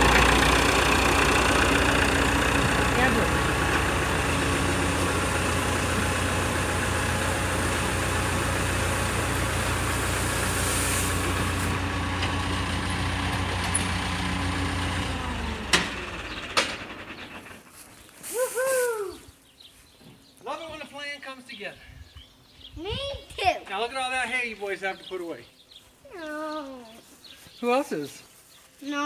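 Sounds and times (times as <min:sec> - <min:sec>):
engine running: 0:00.0 - 0:19.1.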